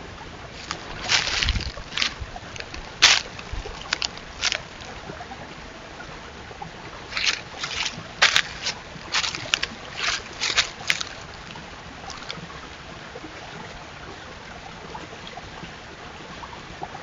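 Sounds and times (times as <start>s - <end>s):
deer crunching apples: 0.6s - 4.9s, 7.1s - 12.4s.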